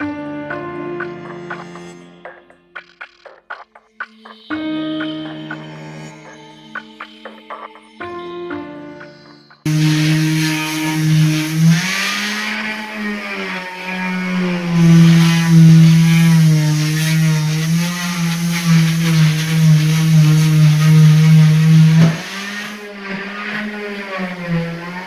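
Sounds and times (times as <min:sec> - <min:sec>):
motor running loudly: 0:09.7 - 0:25.0.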